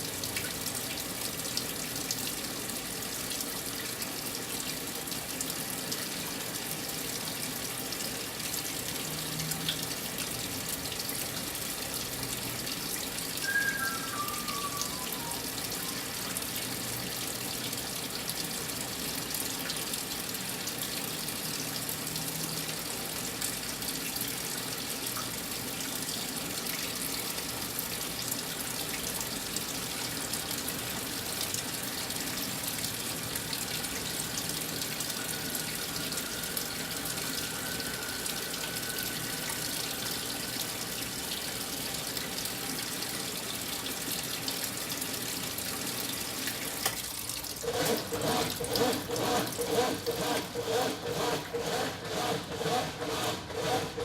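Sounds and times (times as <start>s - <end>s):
washing machine filling with water: 0.0s - 54.0s
descending electronic tones: 13.4s - 16.1s.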